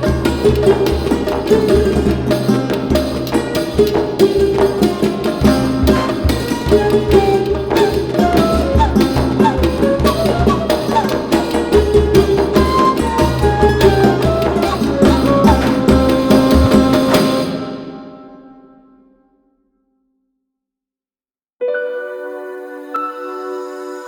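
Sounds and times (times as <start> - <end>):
folk tune with drum beat: 0.0 - 18.1.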